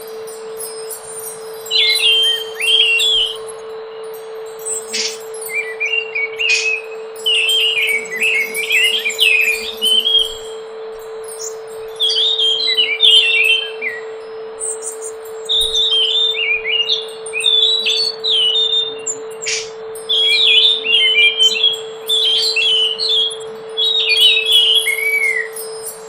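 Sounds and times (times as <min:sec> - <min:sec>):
steady low hum: 0:00.0 - 0:26.0
thrush singing whistled phrases: 0:00.0 - 0:26.0.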